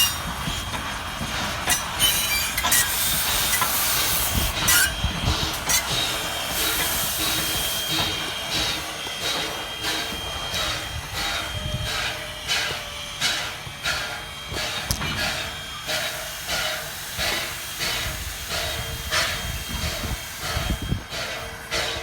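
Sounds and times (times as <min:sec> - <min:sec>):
wheel squeal: 0:00.0 - 0:00.8, 0:01.6 - 0:09.4
steam hissing: 0:00.0 - 0:22.0.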